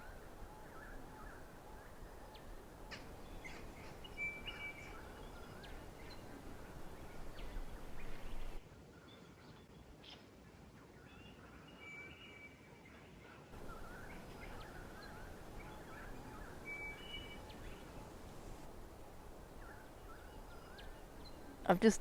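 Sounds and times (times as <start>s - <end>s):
light background hiss: 0.0s - 8.6s, 13.6s - 22.0s
faint birdsong: 0.0s - 22.0s.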